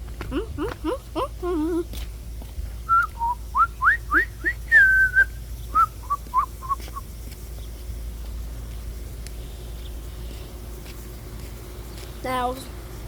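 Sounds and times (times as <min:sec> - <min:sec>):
person whistling: 0:02.9 - 0:07.0.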